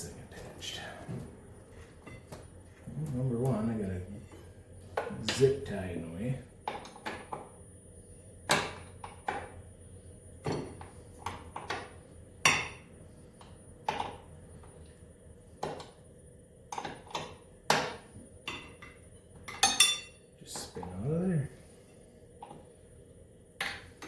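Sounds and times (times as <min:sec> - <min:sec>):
metal tools clinking on metal: 0:18.6 - 0:20.7.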